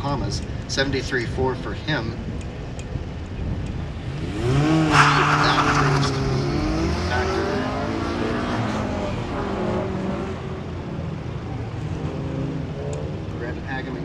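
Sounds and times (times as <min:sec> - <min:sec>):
car engine revving hard: 0:04.0 - 0:10.8.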